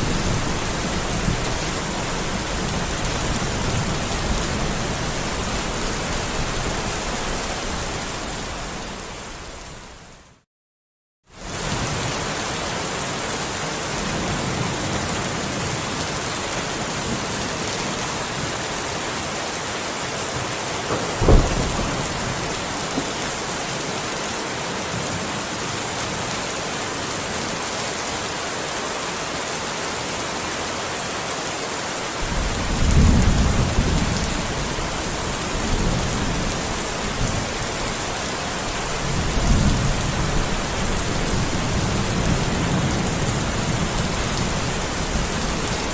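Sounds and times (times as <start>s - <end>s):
steady rain: 0.0s - 10.4s, 11.3s - 45.9s
sharp thunderclap: 20.9s - 23.5s, 32.2s - 36.5s
rolling thunder rumbles: 20.9s - 23.6s, 32.2s - 37.7s.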